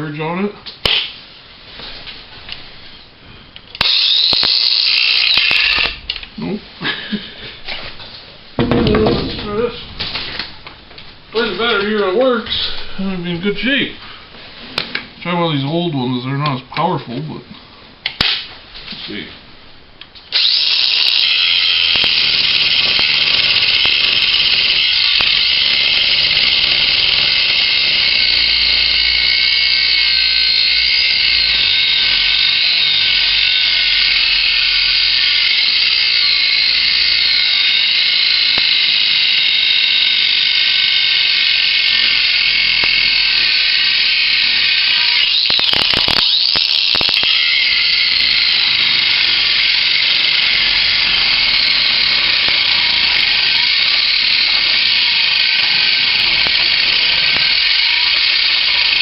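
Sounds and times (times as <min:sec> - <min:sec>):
angle grinder whining: 0:02.5 - 0:07.1, 0:20.3 - 0:59.0.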